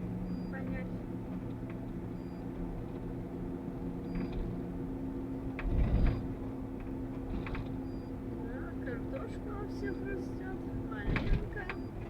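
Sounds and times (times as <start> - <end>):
van engine and road hum: 0.0 - 12.0.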